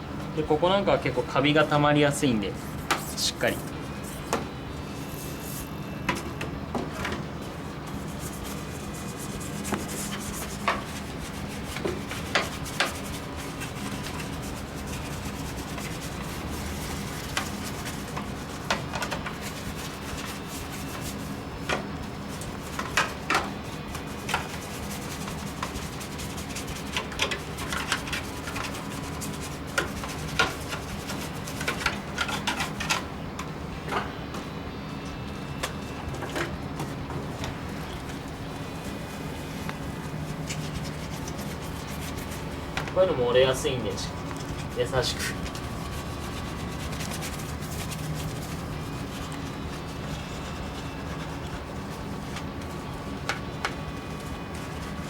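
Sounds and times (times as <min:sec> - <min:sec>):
steady low hum: 0:00.0 - 0:55.0
brush scrubbing plastic: 0:07.8 - 0:33.0, 0:37.3 - 0:55.0.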